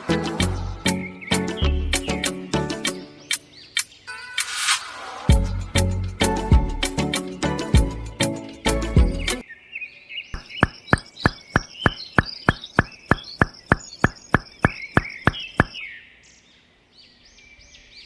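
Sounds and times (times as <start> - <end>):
birds chirping: 0.0 - 4.5, 5.3 - 6.3, 7.2 - 18.0
sharp even taps: 10.4 - 15.8.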